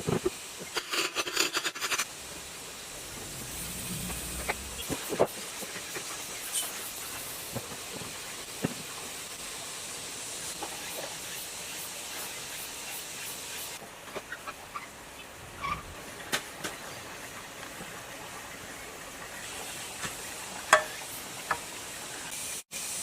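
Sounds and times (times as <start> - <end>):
steady hiss: 2.0 - 14.2, 17.1 - 23.0.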